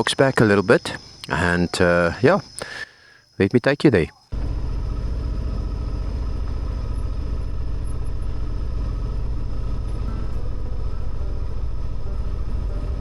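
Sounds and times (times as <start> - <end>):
motorcycle engine running: 4.3 - 13.0.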